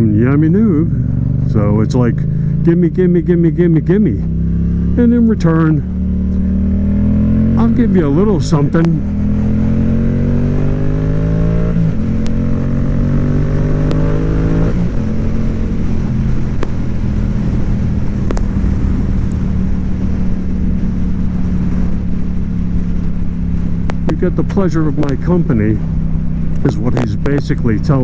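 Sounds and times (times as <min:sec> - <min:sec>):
motorcycle engine accelerating: 0:00.0 - 0:28.0
motorcycle gear upshifts: 0:06.0 - 0:27.4.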